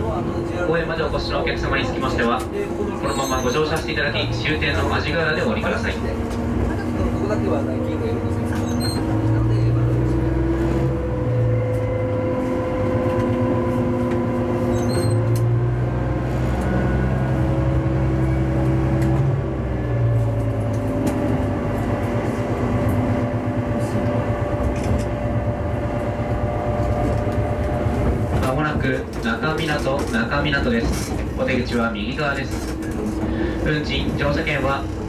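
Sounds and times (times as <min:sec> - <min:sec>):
diesel engine drone: 0:00.0 - 0:35.0
wheels clicking on track: 0:20.1 - 0:35.0.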